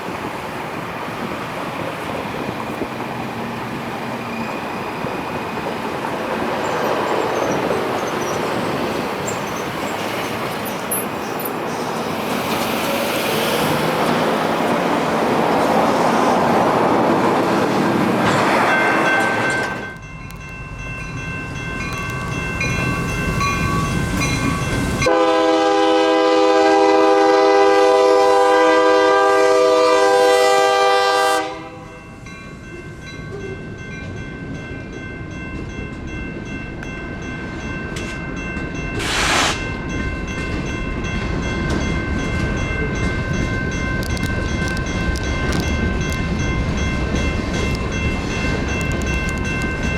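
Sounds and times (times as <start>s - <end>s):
train noise: 0.0s - 49.9s
crossing warning bells ringing: 2.2s - 49.9s
train horn blast: 25.0s - 32.0s
brief hiss: 39.0s - 39.7s.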